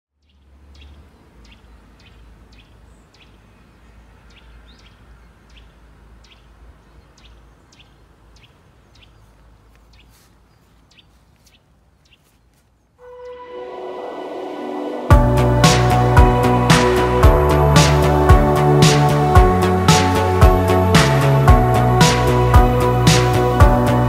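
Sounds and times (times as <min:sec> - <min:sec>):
small bird chirping: 0:00.2 - 0:13.0.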